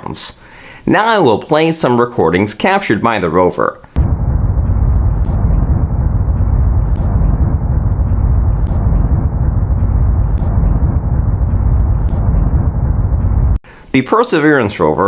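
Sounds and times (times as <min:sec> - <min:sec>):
low rumbling noise: 0:04.0 - 0:13.6.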